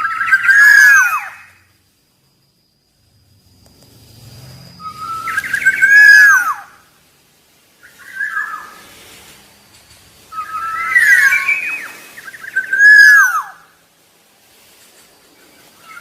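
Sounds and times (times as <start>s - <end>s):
oriole whistling song: 0.0s - 1.7s, 4.6s - 7.0s, 7.8s - 8.9s, 9.6s - 13.8s.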